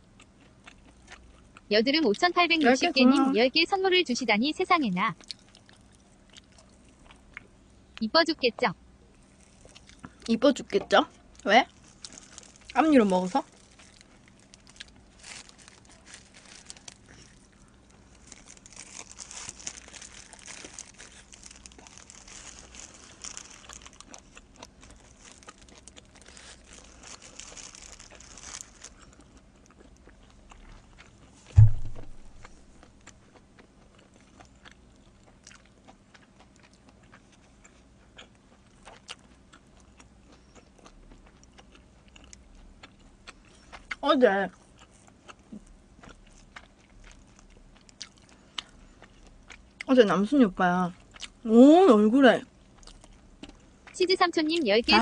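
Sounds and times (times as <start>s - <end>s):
chewing and biting pizza: 0.0s - 2.2s, 5.2s - 7.6s, 9.1s - 10.3s, 11.3s - 50.2s, 50.9s - 51.5s, 52.5s - 54.0s
faint steady hum: 0.0s - 55.0s
dull low thump: 31.5s - 32.8s.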